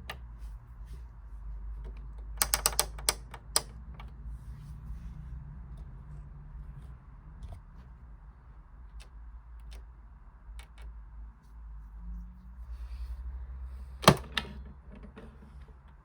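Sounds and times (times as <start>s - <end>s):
sharp plastic clicks: 1.9s - 4.1s.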